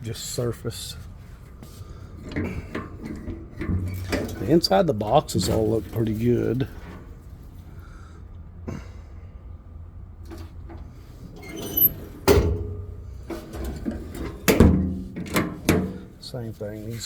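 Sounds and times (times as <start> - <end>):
low steady hum: 0.0 - 17.0
truck compartment doors shutting: 2.2 - 7.2, 10.2 - 16.2.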